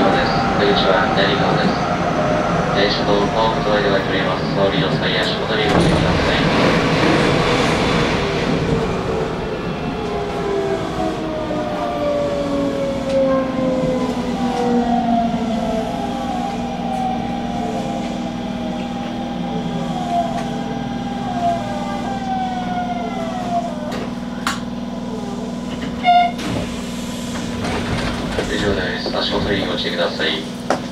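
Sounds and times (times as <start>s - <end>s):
electric train motors whining: 8.2s - 28.8s.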